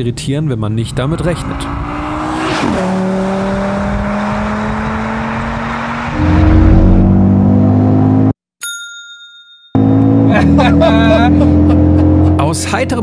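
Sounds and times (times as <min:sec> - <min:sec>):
car engine pulling: 0:00.8 - 0:08.2
deeper engine note: 0:06.2 - 0:08.2
ringing chime: 0:08.6 - 0:09.8.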